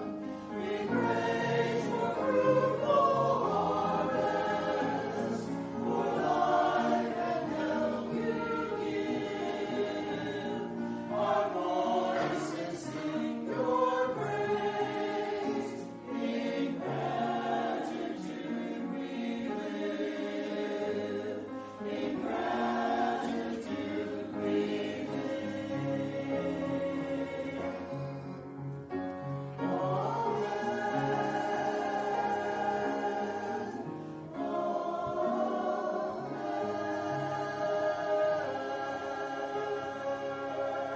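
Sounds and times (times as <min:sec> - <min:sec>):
choir singing in parts: 0:00.0 - 0:28.5, 0:29.2 - 0:40.9.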